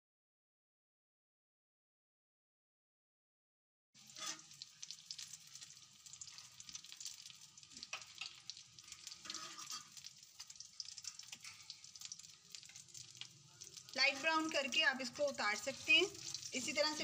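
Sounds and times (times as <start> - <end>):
food sizzling in oil: 4.0 - 17.0.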